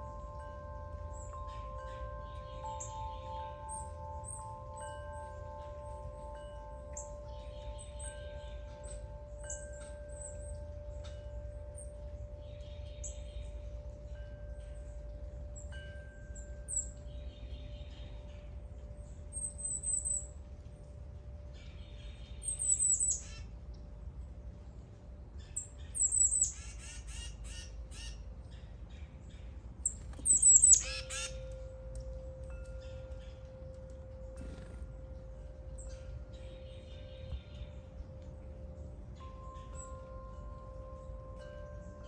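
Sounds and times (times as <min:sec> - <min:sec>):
wind chime ringing: 0:00.0 - 0:23.2, 0:30.3 - 0:42.0
songbirds chirping: 0:00.0 - 0:42.0
harsh bird squawking: 0:30.3 - 0:31.4.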